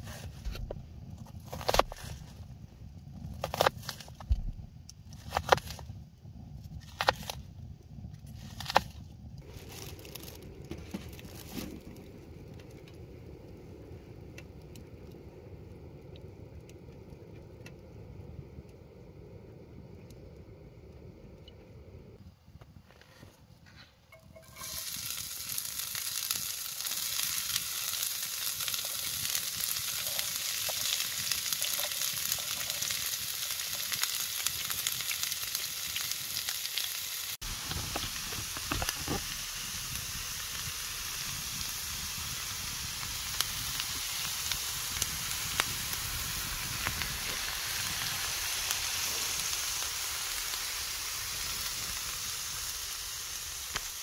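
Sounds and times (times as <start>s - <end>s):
food sizzling and crackling: 8.3s - 12.8s, 24.1s - 54.0s.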